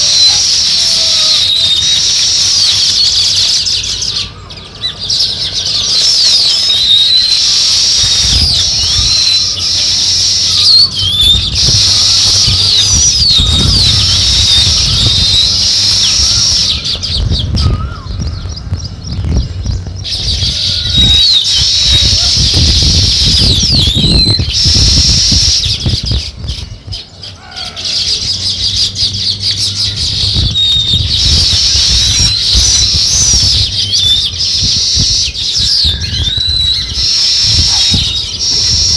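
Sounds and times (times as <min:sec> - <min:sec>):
songbirds chirping: 0:00.0 - 0:38.9
low fluttering rumble: 0:07.9 - 0:38.9.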